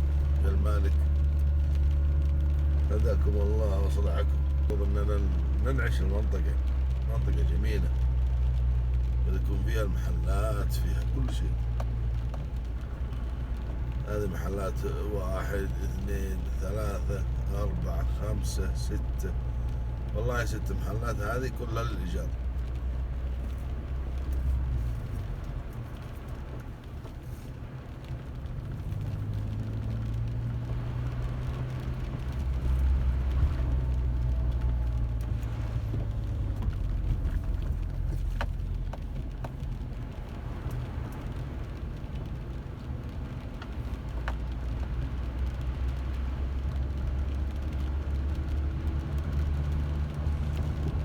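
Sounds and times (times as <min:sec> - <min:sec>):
car engine and road rumble: 0:00.0 - 0:51.0
faint ticks: 0:04.4 - 0:14.1.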